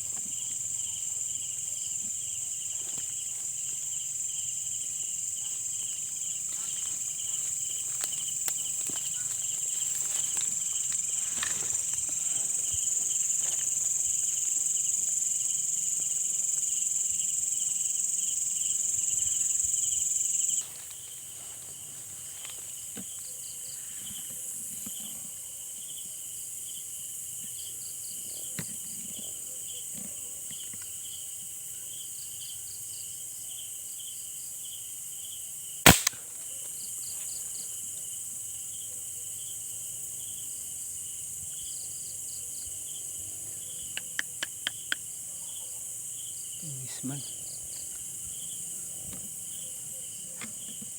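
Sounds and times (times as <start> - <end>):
cricket chirps: 0.0 - 50.9
insects buzzing: 0.0 - 50.9
sharp crack: 35.8 - 36.4.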